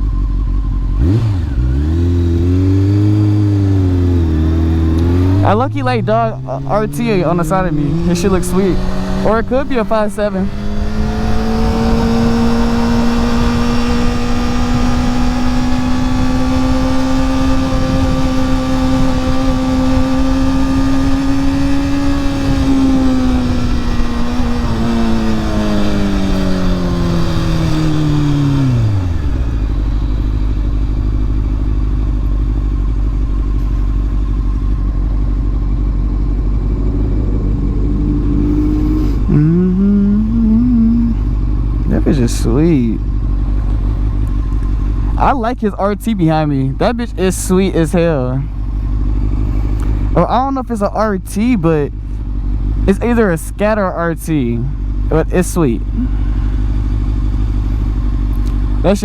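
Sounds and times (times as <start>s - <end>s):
motorcycle engine: 0.0s - 59.0s
wind buffeting microphone: 10.5s - 29.8s, 36.1s - 39.4s.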